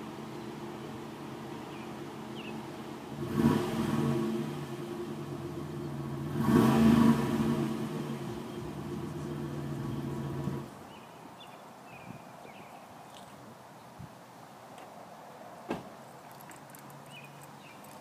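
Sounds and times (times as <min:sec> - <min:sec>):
car engine revving and idling: 0:01.7 - 0:10.8.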